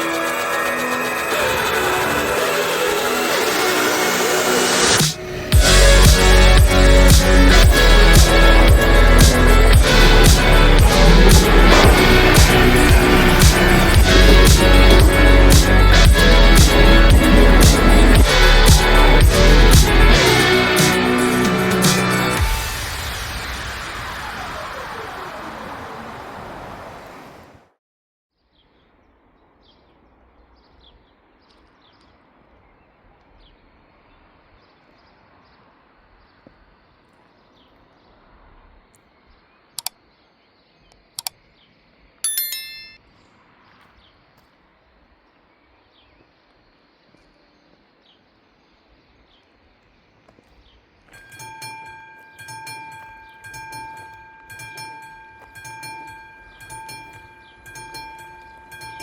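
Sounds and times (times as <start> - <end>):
level crossing warning bells: 0.0 - 22.4, 42.2 - 43.1, 51.1 - 59.0
high chirping burst: 0.0 - 24.2
sharp clicks: 39.8 - 40.0, 40.9 - 41.4.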